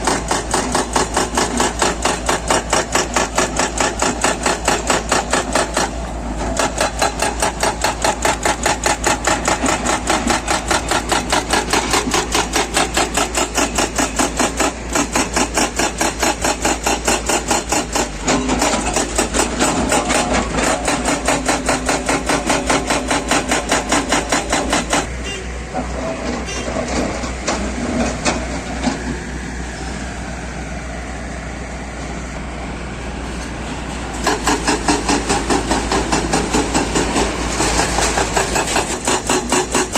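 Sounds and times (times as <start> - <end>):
hydraulic breaker hammering rock: 0.0 - 25.1, 34.2 - 39.9
diesel engine running: 0.0 - 39.9.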